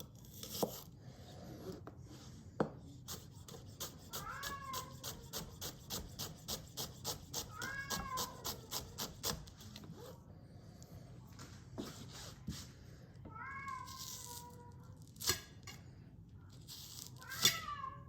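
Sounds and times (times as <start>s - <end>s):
knife cutting on a cutting board: 0.0s - 0.9s, 2.9s - 9.9s
cat meowing: 4.1s - 5.1s, 7.5s - 8.7s, 13.3s - 14.9s, 17.2s - 18.0s.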